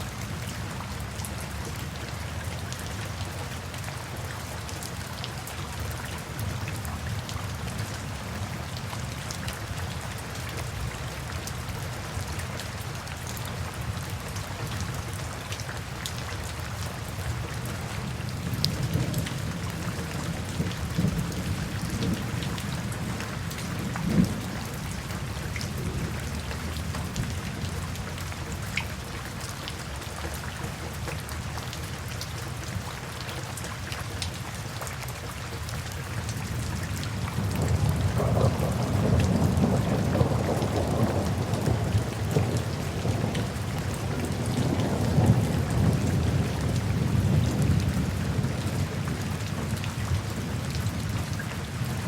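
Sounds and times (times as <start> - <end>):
rain drops: 0.0 - 52.0
steady rain falling: 0.0 - 52.0
low rumble of thunder: 18.1 - 28.6, 36.4 - 52.0.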